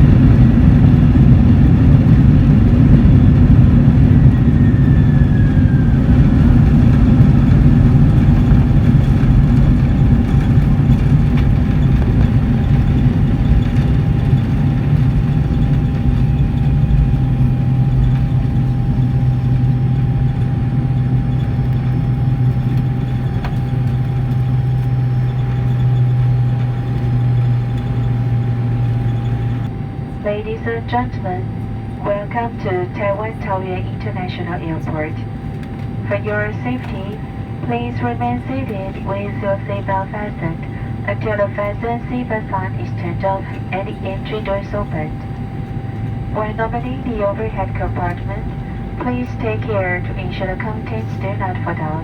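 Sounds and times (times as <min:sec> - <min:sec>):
jet engines and wheels rumbling: 0:00.0 - 0:52.0.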